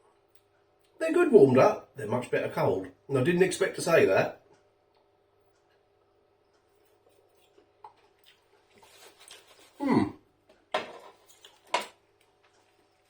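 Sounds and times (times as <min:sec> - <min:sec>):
man chewing food: 0:04.5 - 0:09.8, 0:10.4 - 0:13.0.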